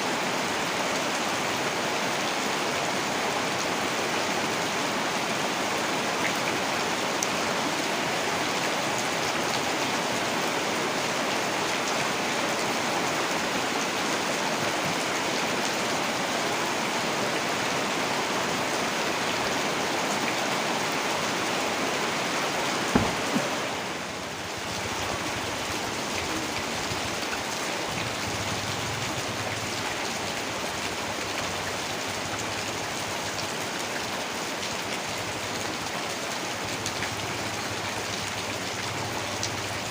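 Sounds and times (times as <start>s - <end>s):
heavy rain: 0.0s - 39.9s
short knock: 22.9s - 23.6s.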